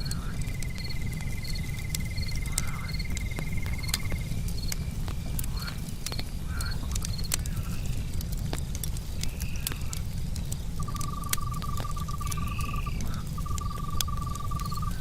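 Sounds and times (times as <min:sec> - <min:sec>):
crickets chirping: 0:00.0 - 0:04.9, 0:10.8 - 0:15.0
campfire crackling and popping: 0:00.0 - 0:15.0
frog calls: 0:10.8 - 0:15.0
insect trilling: 0:10.8 - 0:15.0.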